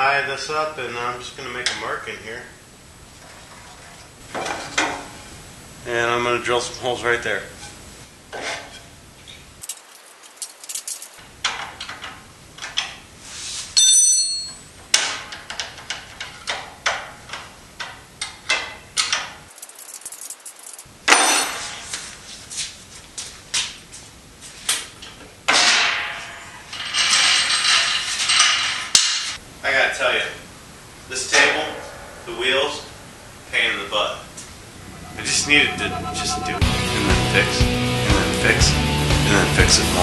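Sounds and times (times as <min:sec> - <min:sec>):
high whine: 0:29.4 - 0:40.0
tools clanking on metal bench: 0:31.3 - 0:33.1.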